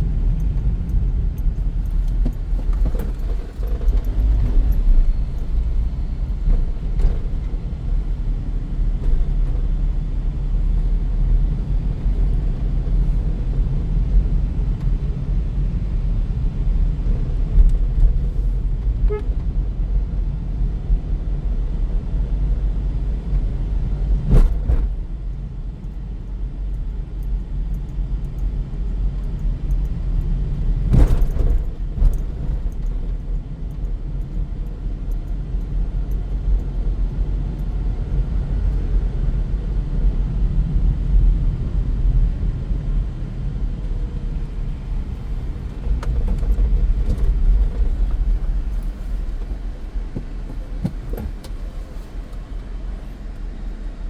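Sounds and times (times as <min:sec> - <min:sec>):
road and tyre rumble: 0:00.0 - 0:54.0
sharp thumps from road: 0:01.6 - 0:08.2, 0:08.9 - 0:09.8, 0:24.2 - 0:25.3, 0:30.7 - 0:33.4, 0:44.5 - 0:52.6.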